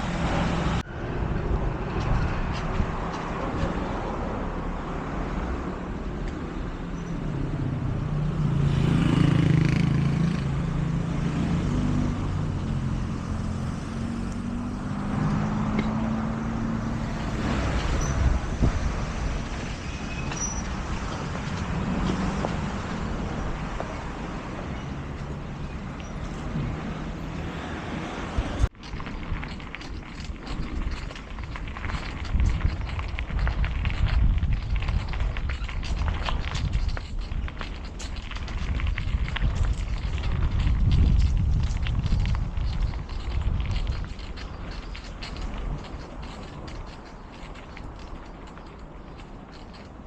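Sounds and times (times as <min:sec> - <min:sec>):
motor vehicles passing: 0:00.0 - 0:50.0
engine running close by: 0:07.6 - 0:19.0.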